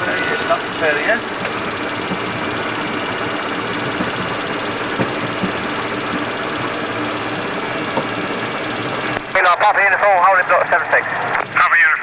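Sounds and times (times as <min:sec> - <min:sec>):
flight deck noise: 0:00.0 - 0:12.0
jet engines idling: 0:00.0 - 0:12.0
faint knocks: 0:03.7 - 0:06.8, 0:07.9 - 0:08.2.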